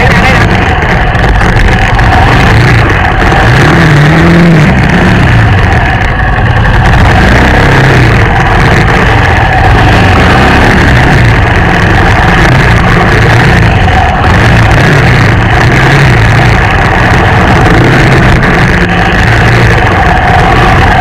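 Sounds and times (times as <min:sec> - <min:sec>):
motorbike engine revving: 0:00.0 - 0:21.0.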